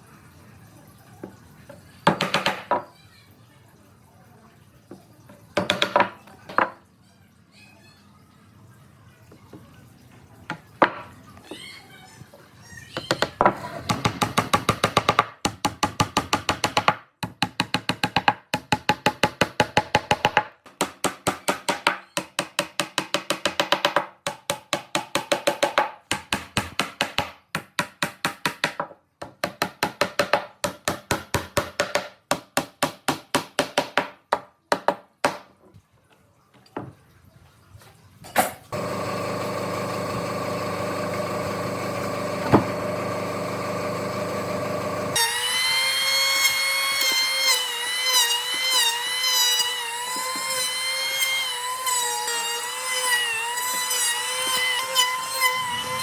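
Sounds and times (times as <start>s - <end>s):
power tool whining: 38.7s - 56.0s.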